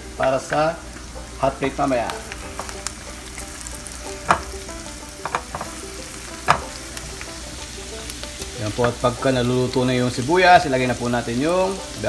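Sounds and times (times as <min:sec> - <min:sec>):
shallots sizzling in butter: 0:00.0 - 0:12.0
spatula knocking against pan: 0:04.2 - 0:07.8.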